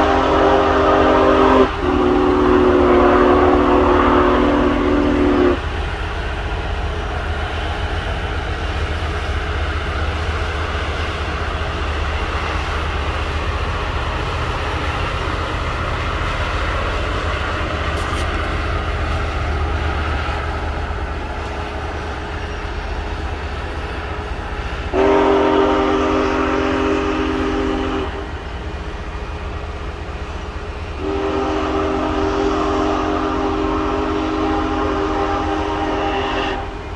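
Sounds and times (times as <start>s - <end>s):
steam locomotive chime whistle: 0.0s - 5.8s, 24.9s - 28.4s, 30.9s - 36.9s
train rumbling: 0.0s - 36.9s.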